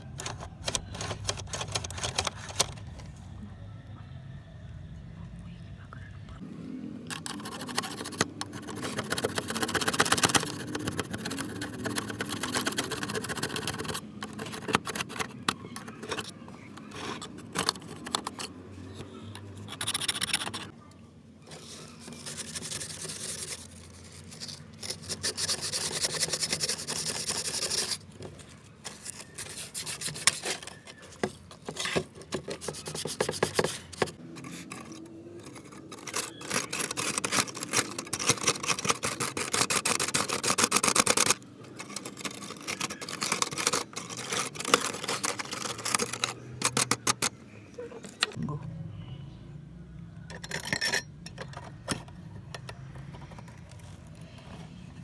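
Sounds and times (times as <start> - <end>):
hand scraping hard workpiece: 21.5 - 47.4.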